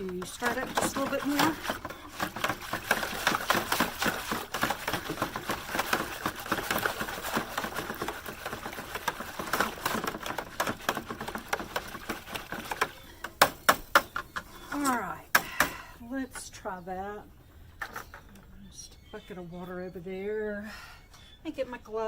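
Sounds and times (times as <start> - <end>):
stirrer knocking against plastic bucket: 0.0 - 14.6.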